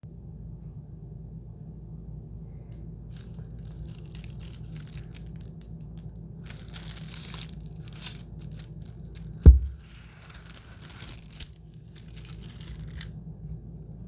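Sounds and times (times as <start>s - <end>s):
steady low hum: 0.0s - 14.0s
packaging wrapper crinkling and tearing: 3.1s - 13.2s.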